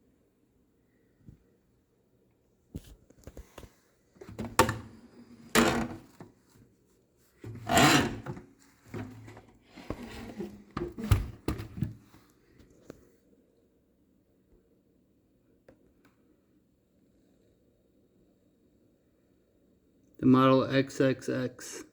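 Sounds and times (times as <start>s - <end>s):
vacuum cleaner being handled: 2.8s - 6.4s, 7.4s - 12.2s.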